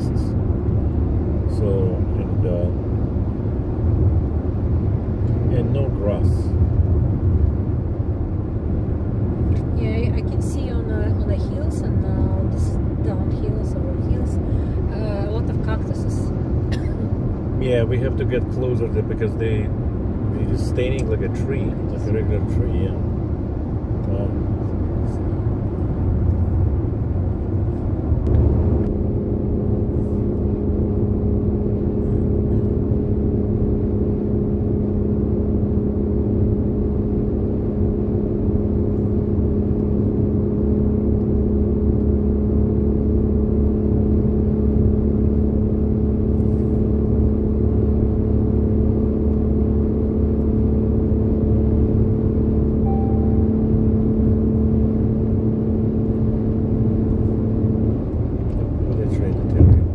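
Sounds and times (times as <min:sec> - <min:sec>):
road and engine rumble: 0:00.0 - 0:59.9
steady hum: 0:52.8 - 0:55.8.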